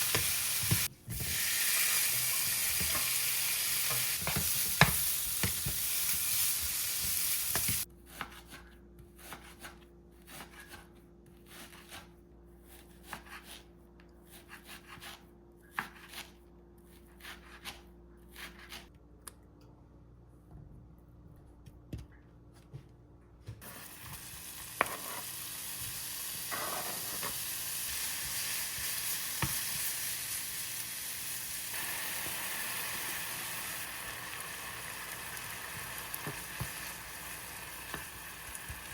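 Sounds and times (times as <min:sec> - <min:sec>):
food sizzling in a frying pan: 0:00.0 - 0:07.9, 0:23.6 - 0:38.9.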